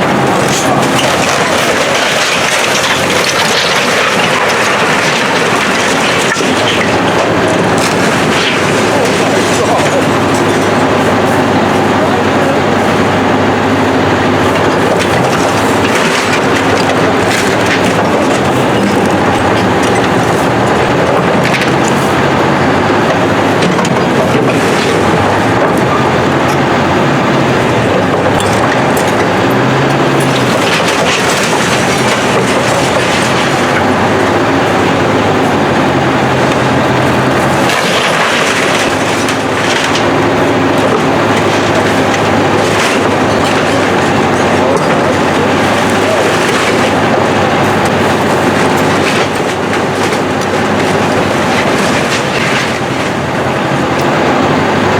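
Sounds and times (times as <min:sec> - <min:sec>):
building cracking and crunching: 0:00.0 - 0:54.9
demolition machine engine: 0:00.0 - 0:54.9.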